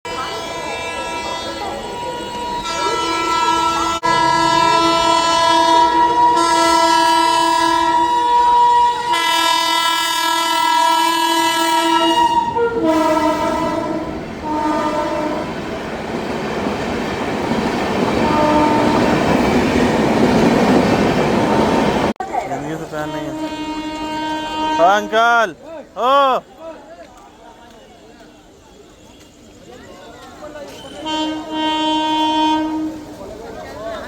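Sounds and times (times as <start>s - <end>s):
train horn blasts: 0.1s - 15.7s, 18.2s - 19.4s, 23.0s - 25.4s, 30.9s - 33.2s
train wheels rumbling on rails: 0.1s - 25.9s.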